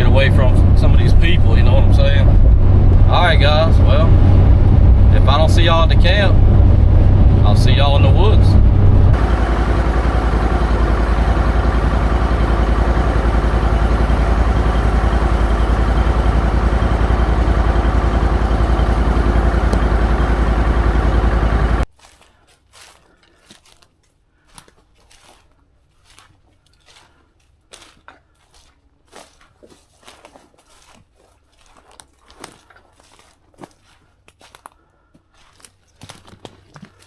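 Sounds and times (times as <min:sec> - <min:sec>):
engine running: 0:00.0 - 0:21.9
faint crunches and rustles: 0:21.9 - 0:37.0.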